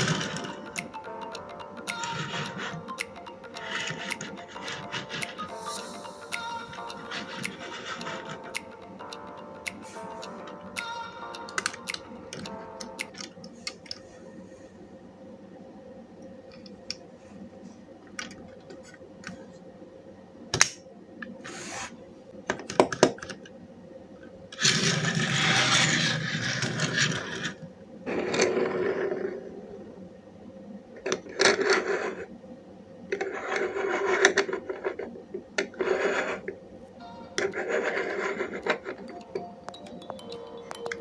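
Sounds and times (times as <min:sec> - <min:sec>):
toy cars clicking and knocking: 0:00.0 - 0:00.9, 0:01.9 - 0:05.5, 0:07.1 - 0:08.6, 0:24.6 - 0:27.6
toy cars scraping on hard surface: 0:03.6 - 0:05.5, 0:07.1 - 0:08.4, 0:24.6 - 0:29.3, 0:33.2 - 0:35.1, 0:35.7 - 0:36.5, 0:37.4 - 0:39.0.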